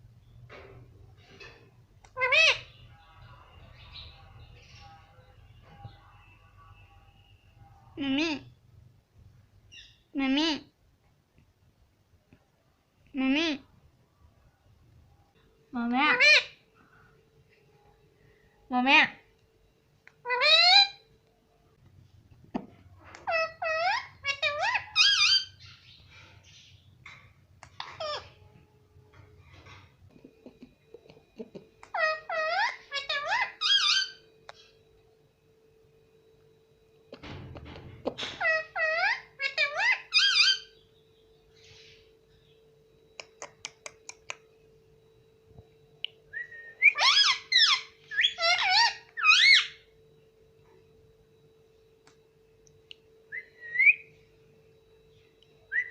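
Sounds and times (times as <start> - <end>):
parrot calling: 2.1 - 5.0, 15.9 - 16.6, 20.2 - 21.1, 23.1 - 26.0, 27.6 - 28.4, 31.8 - 34.3, 38.1 - 40.8, 46.3 - 49.8, 53.3 - 54.1, 55.7 - 55.9
parrot whistling: 46.3 - 49.8, 53.3 - 54.1, 55.7 - 55.9.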